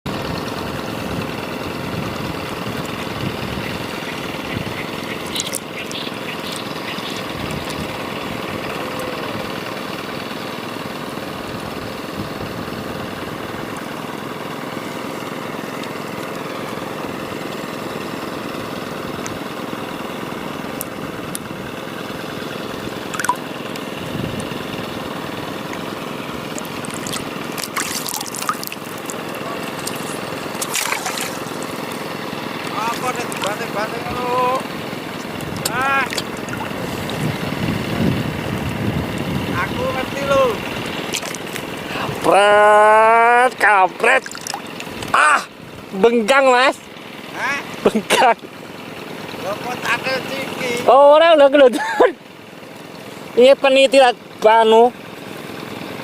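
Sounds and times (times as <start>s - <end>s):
running splashing water: 2.6s - 9.3s, 23.0s - 23.8s, 25.0s - 34.0s, 34.6s - 37.8s, 40.7s - 42.2s, 43.5s - 45.2s.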